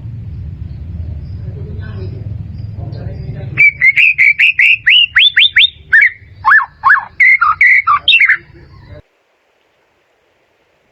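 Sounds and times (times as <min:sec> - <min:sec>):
bird singing whistled notes: 0:00.7 - 0:09.0.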